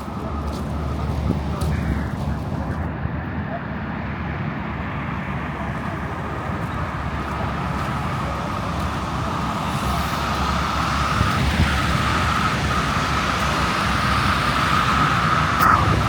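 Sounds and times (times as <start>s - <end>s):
strong wind buffeting microphone: 5.8s - 16.0s
steady high whine: 11.4s - 16.0s.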